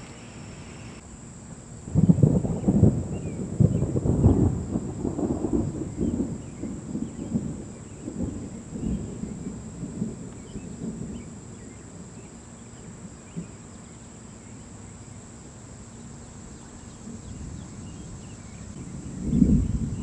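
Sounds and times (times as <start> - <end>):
thunder rumbling: 1.8 - 13.7, 16.1 - 20.0.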